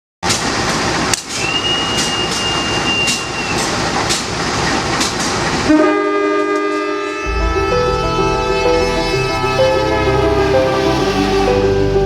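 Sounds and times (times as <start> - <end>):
wheels clacking on rail joints: 0.2 - 5.7
train passing at speed: 0.3 - 12.0
music: 7.2 - 12.0.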